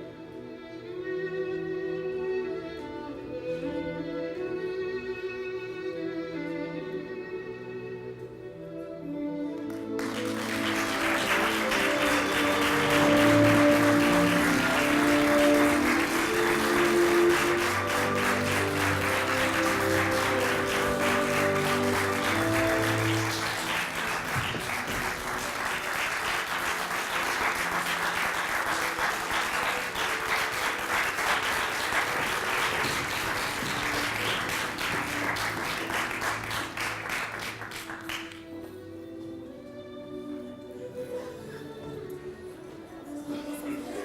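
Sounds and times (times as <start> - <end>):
music with long held notes: 0.0 - 44.0
audience applauding: 9.7 - 38.5.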